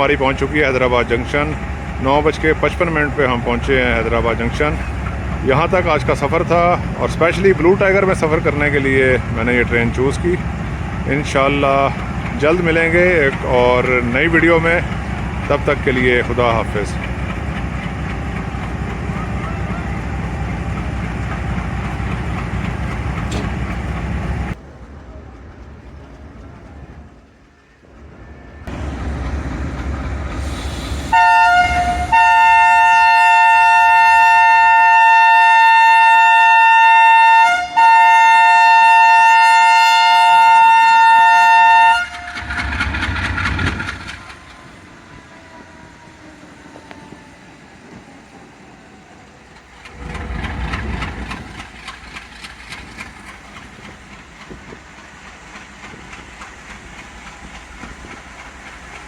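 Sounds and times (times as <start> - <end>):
locomotive horn blasts: 31.1 - 42.6
low rumbling: 49.6 - 59.0.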